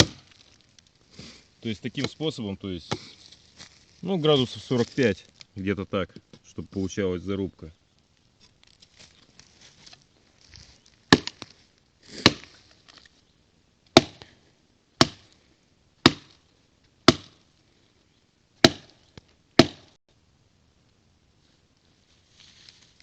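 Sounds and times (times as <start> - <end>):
blade chopping into wood: 0.0 - 0.3, 11.1 - 11.4, 12.2 - 12.5, 13.9 - 14.3, 15.0 - 15.3, 16.0 - 16.4, 17.1 - 17.4, 18.6 - 19.0, 19.6 - 20.0
faint rustling: 0.2 - 6.6, 8.2 - 13.3, 21.4 - 23.0.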